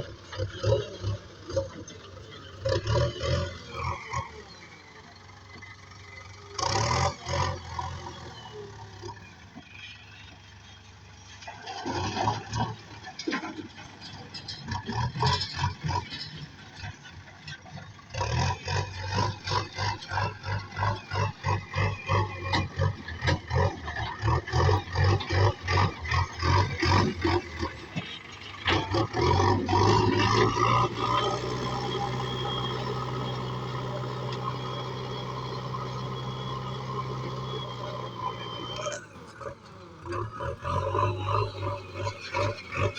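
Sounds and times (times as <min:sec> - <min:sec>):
diesel engine working: 0:00.0 - 0:42.9.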